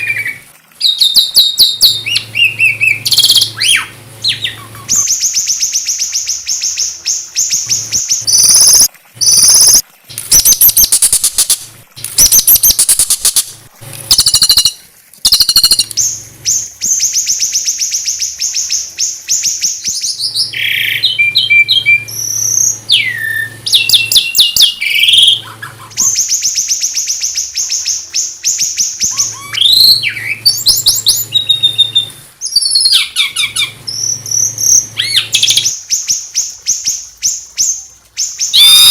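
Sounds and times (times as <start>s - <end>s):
high-pitched bird trills: 0.0s - 6.3s, 8.3s - 11.6s, 14.1s - 16.1s, 29.0s - 35.8s, 38.5s - 38.9s
sharp bird chips: 7.7s - 16.6s.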